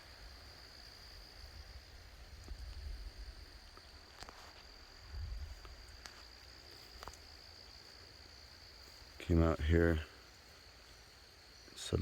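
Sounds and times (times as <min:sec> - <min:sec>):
insects trilling: 0:00.0 - 0:12.0
faint ticks: 0:02.3 - 0:03.0, 0:05.5 - 0:08.0.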